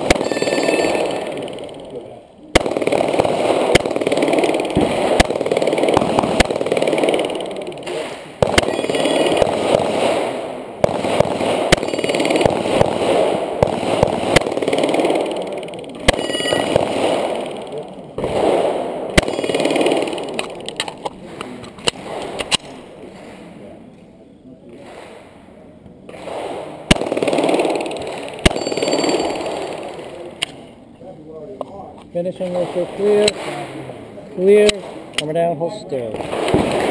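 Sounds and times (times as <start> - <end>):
pistol shots: 0.0 - 22.8, 26.1 - 30.6, 36.0 - 36.9.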